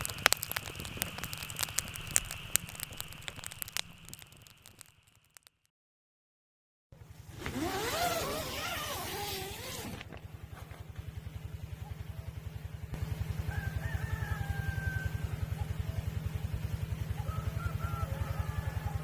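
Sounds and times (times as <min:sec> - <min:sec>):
rooster crowing: 0:13.5 - 0:15.2.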